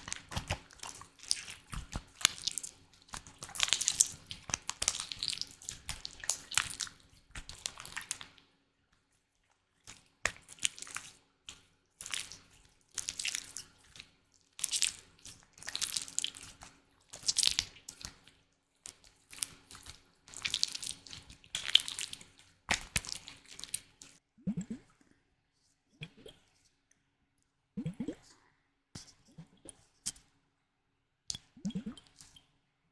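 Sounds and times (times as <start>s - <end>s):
slime clicking and popping: 0.0s - 8.3s.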